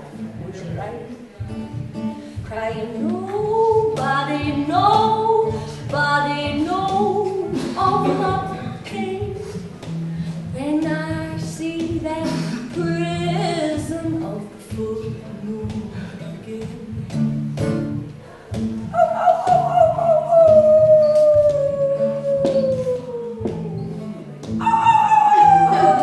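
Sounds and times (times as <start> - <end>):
voice singing wavering notes: 19.0 - 26.0.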